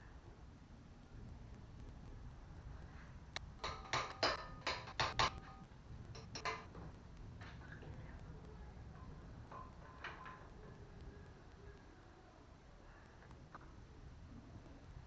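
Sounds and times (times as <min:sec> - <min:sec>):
sharp clicks and knocks: 0:03.3 - 0:10.8.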